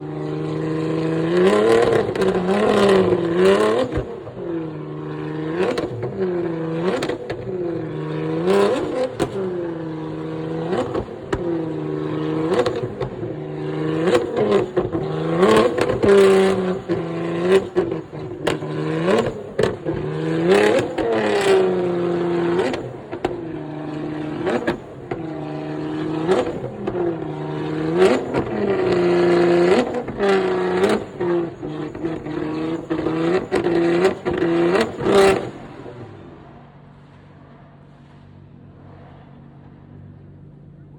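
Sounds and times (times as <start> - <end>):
sports car engine revving: 0.0 - 40.9
exhaust cracks: 5.2 - 39.8.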